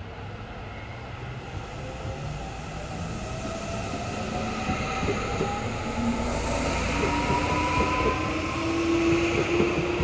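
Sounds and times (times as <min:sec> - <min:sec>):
rising train whine: 0:00.0 - 0:10.0
electric train running: 0:02.8 - 0:10.0.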